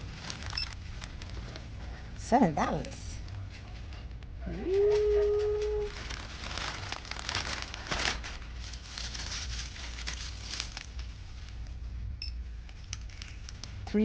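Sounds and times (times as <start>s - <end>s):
plastic packaging crinkling: 0.0s - 1.9s, 4.6s - 11.8s, 12.7s - 13.9s
low background hum: 0.0s - 14.0s.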